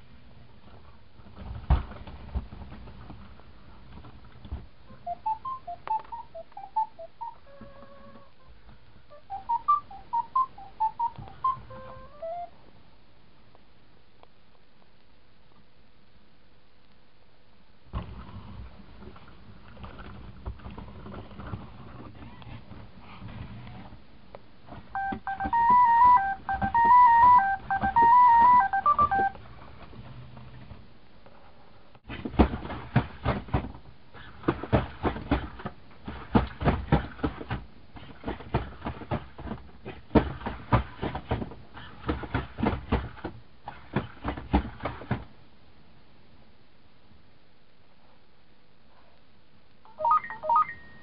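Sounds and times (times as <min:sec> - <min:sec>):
robot dog beeping melody: 0:05.0 - 0:08.2, 0:09.1 - 0:12.5, 0:25.0 - 0:29.4, 0:49.9 - 0:51.0
rapid clicks and taps: 0:25.0 - 0:29.4.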